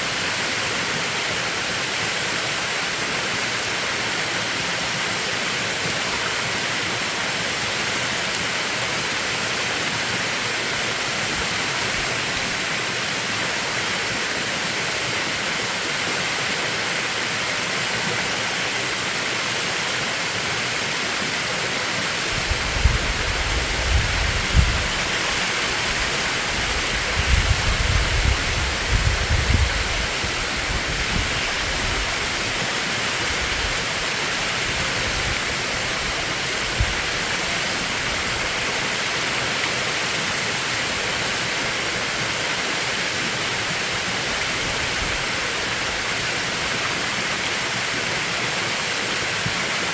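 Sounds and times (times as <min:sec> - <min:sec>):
stream rushing over rocks: 0:00.0 - 0:49.9
wind buffeting microphone: 0:22.3 - 0:32.4.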